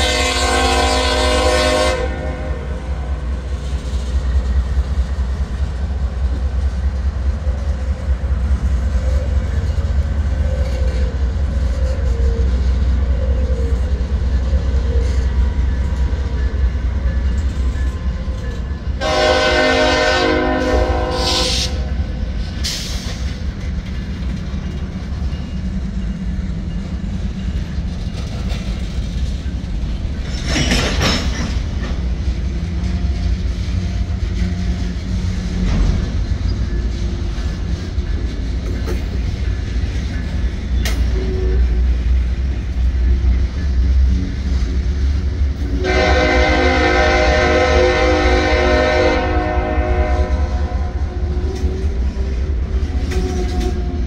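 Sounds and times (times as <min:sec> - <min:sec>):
train air horn: 0:00.0 - 0:03.2, 0:19.0 - 0:22.1, 0:45.6 - 0:51.5
diesel train rumble: 0:00.0 - 0:54.0
wheels clattering on rail: 0:03.2 - 0:21.1, 0:21.7 - 0:50.0, 0:50.6 - 0:54.0.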